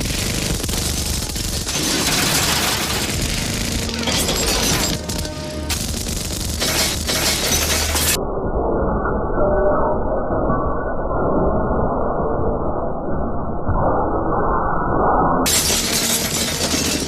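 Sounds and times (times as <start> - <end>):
loud dense music: 3.1 - 7.1.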